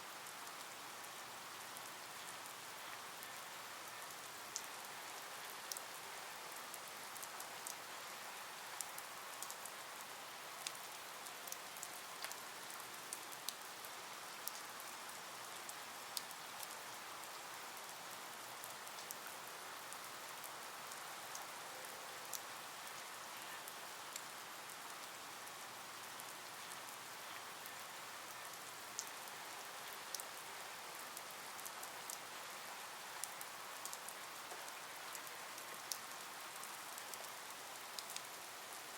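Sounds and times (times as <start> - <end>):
rain hiss: 0.0 - 38.9
raindrops ticking on a surface: 0.1 - 38.9.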